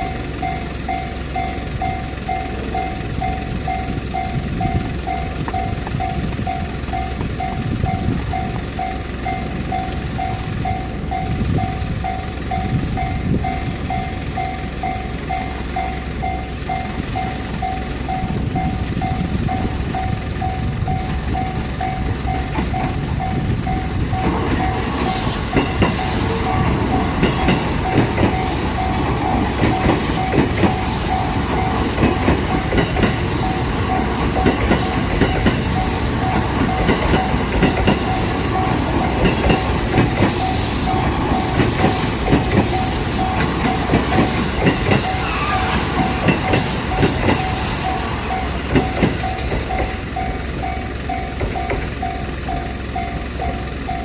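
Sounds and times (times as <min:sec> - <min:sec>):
level crossing warning bell: 0:00.0 - 0:54.0
train wheels clattering: 0:00.0 - 0:54.0.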